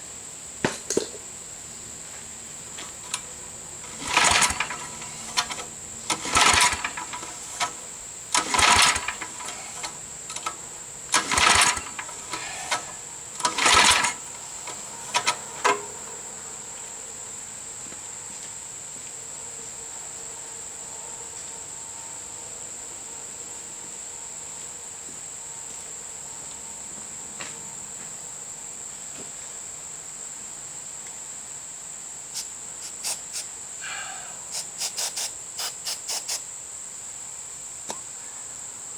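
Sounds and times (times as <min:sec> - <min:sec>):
insects chirring: 0:00.1 - 0:24.5, 0:29.7 - 0:38.9
mower engine cranking: 0:02.6 - 0:16.3.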